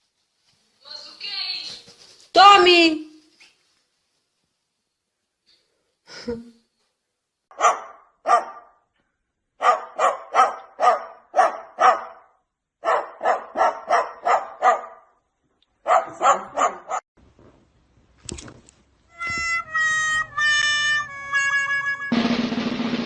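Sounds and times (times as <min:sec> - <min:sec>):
dog barking: 0:07.5 - 0:08.8, 0:09.6 - 0:15.2, 0:15.8 - 0:17.0.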